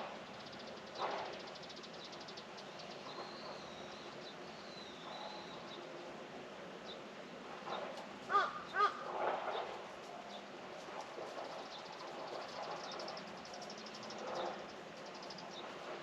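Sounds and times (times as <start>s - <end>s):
crow cawing: 8.3s - 9.0s.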